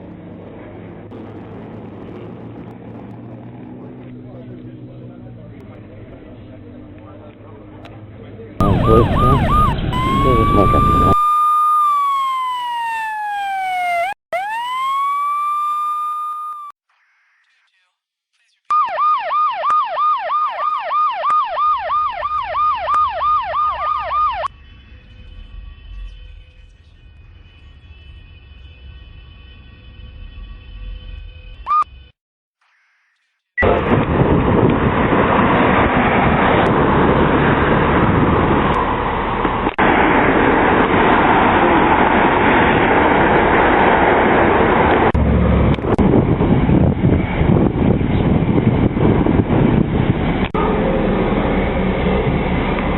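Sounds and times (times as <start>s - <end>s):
low rumble: 0.0s - 11.2s, 33.6s - 52.9s
road vehicle rush: 0.0s - 11.3s, 33.6s - 52.9s
police siren fast yelp: 8.6s - 16.7s, 18.7s - 24.5s.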